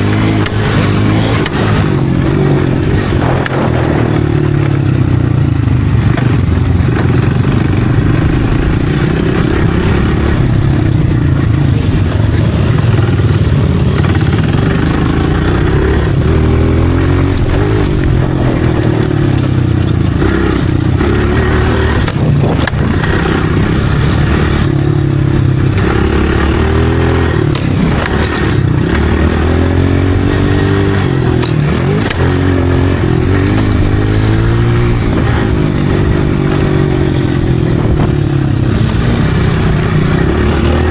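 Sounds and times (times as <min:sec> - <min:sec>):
dirt bike engine revving: 0:00.0 - 0:40.9
sharp knocks and clatter: 0:17.3 - 0:37.0.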